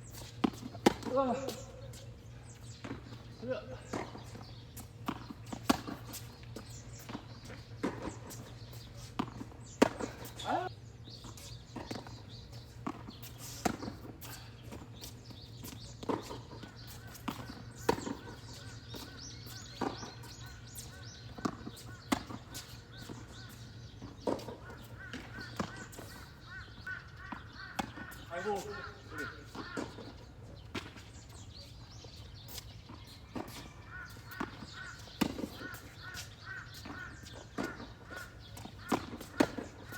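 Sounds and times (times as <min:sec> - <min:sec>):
tennis ball bouncing: 0:00.1 - 0:01.7, 0:02.6 - 0:10.6, 0:11.3 - 0:31.1, 0:32.5 - 0:39.9
rackets striking tennis ball: 0:00.1 - 0:02.0, 0:02.6 - 0:10.7, 0:15.7 - 0:26.3, 0:27.3 - 0:31.1, 0:33.3 - 0:39.9.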